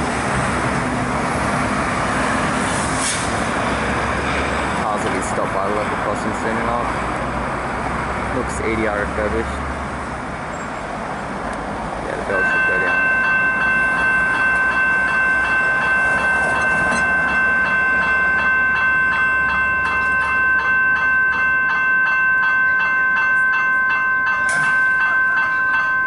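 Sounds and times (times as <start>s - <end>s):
electric train rumble: 0.0s - 26.0s
level crossing warning bells: 4.8s - 7.0s, 12.0s - 26.0s.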